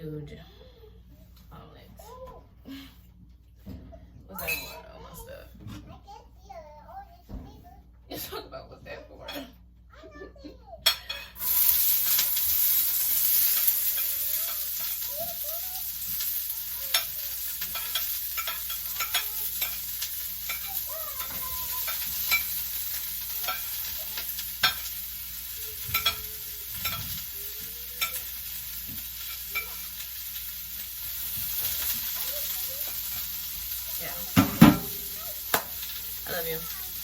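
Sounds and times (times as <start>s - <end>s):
omelet sizzling in a pan: 10.9s - 37.0s
utensil scraping a pan: 11.3s - 25.0s, 25.6s - 36.8s.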